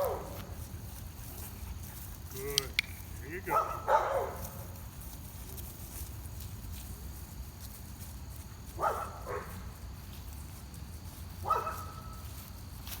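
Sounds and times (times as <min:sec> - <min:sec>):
dogs barking: 0:00.0 - 0:00.4, 0:03.5 - 0:04.5, 0:08.8 - 0:09.6, 0:11.4 - 0:12.0.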